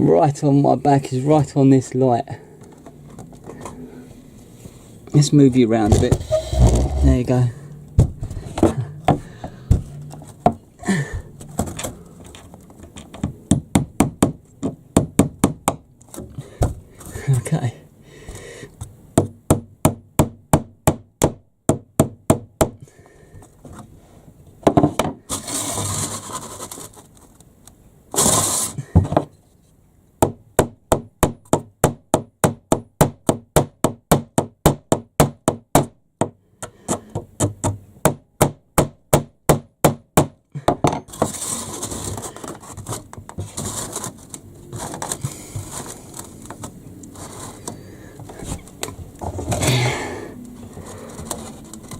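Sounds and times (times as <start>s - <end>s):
hammer driving nails into wood: 13.0s - 16.8s, 30.2s - 41.4s
handling noise: 40.9s - 51.9s.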